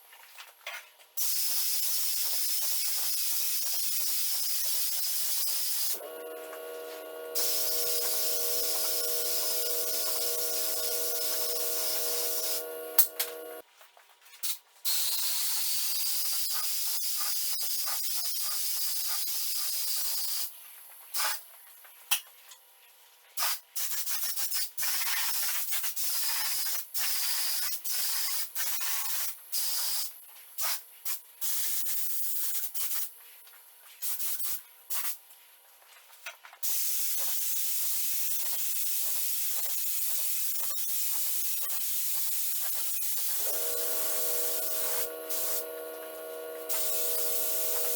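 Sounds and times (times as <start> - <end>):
paint spray gun hissing: 1.2 - 13.6, 36.7 - 47.9.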